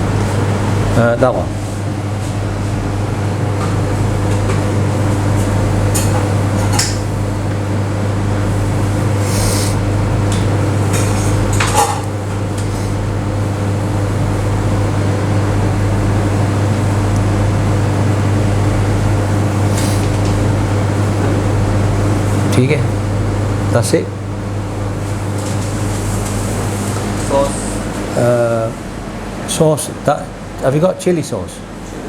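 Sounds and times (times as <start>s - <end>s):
air conditioning hum: 0.0s - 32.0s.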